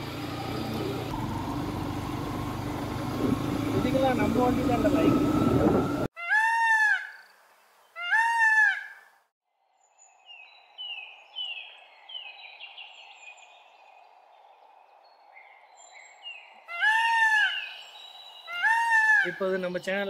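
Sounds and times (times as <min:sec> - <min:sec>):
loud bird calls: 0:16.1 - 0:19.4.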